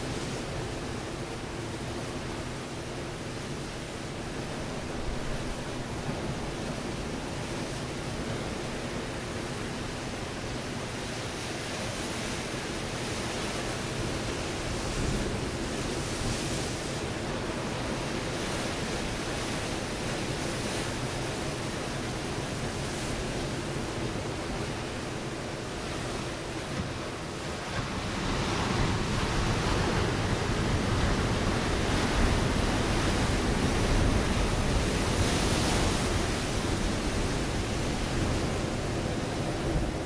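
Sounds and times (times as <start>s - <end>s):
surf breaking on rocky shore: 13.7s - 40.0s.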